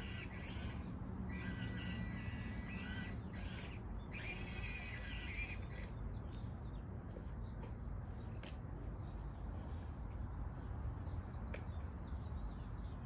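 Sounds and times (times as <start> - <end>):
electric toy truck motors whining: 0.0 - 5.9.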